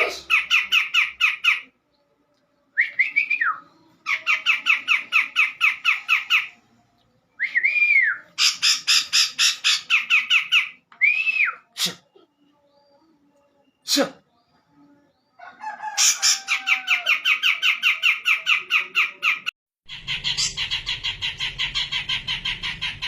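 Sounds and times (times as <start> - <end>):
bird harsh squawky calls: 8.4 - 10.8, 15.8 - 23.0.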